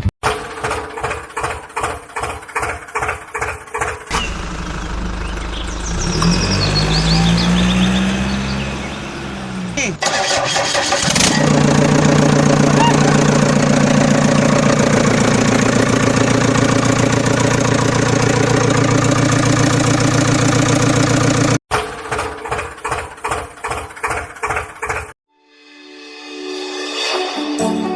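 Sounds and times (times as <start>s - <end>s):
engine chugging: 0.2s - 8.3s, 9.5s - 25.2s
pulsing engine-like sound: 10.1s - 21.6s.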